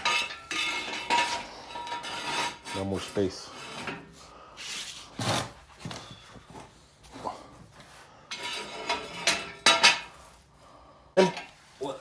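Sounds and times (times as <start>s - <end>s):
metal jack stand scraping: 0.0s - 5.5s, 8.3s - 10.3s.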